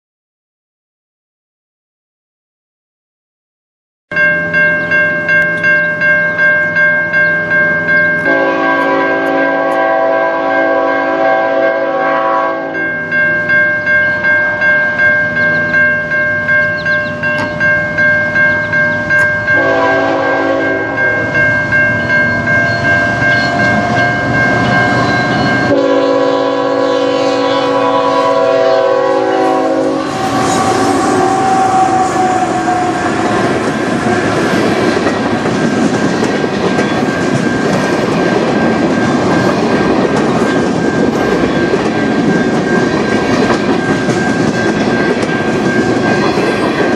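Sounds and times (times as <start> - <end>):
level crossing bell ringing: 4.1 - 11.1, 12.8 - 25.9
freight train rumbling past: 4.1 - 46.9
locomotive horn blasts: 8.2 - 13.0, 19.5 - 21.4, 25.0 - 34.4
wheels clickety-clack over rails: 32.6 - 46.9.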